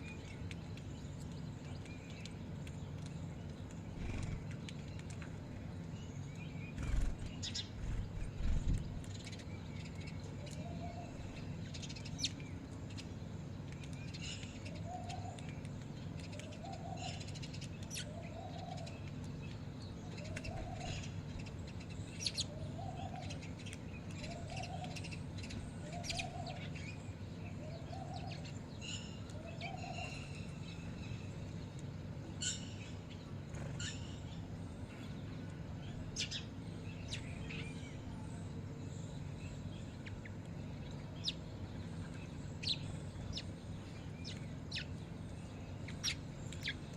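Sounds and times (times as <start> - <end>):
bird low hooting: 6.7 - 8.9, 10.4 - 11.6, 14.7 - 15.5, 16.4 - 19.0, 20.1 - 21.5, 22.1 - 23.6, 24.2 - 31.4.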